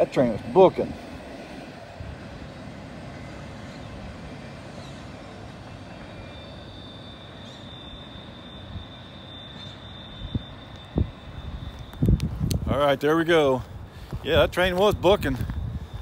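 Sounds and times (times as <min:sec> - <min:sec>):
train wheels rumbling on rail: 0:00.0 - 0:16.0
high-pitched squeal: 0:02.4 - 0:13.6.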